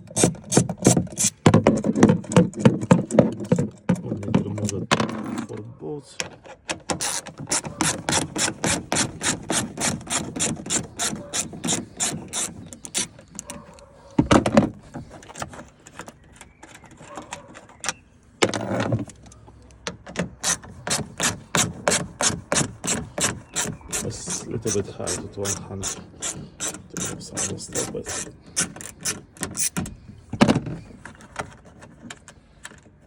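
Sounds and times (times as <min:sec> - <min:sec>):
hand ratchet clicking: 0:07.0 - 0:13.8, 0:20.4 - 0:29.9.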